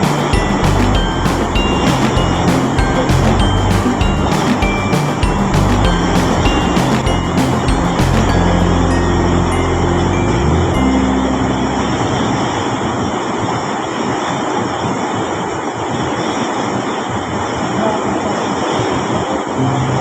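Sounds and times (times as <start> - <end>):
fast-flowing river water: 0.0 - 8.9
background music: 0.0 - 13.5.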